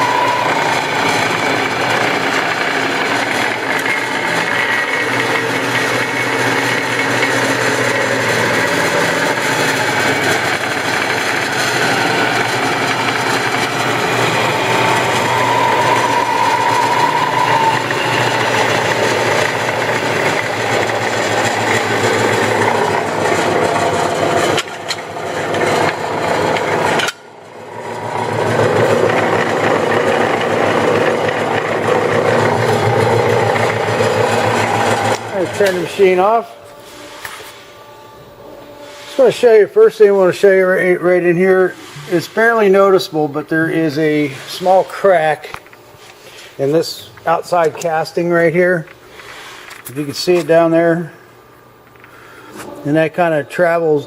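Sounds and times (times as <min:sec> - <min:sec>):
drill press motor hum: 0:00.0 - 0:39.2.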